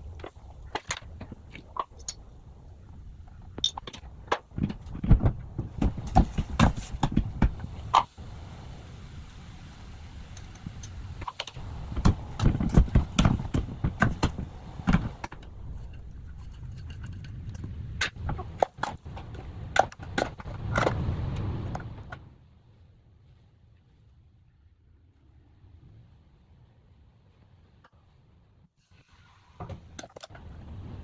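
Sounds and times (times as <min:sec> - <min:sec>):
handling knocks and clatters: 0:00.0 - 0:08.1, 0:10.6 - 0:22.2
wind rumbling on microphone: 0:00.0 - 0:28.6, 0:29.5 - 0:31.0.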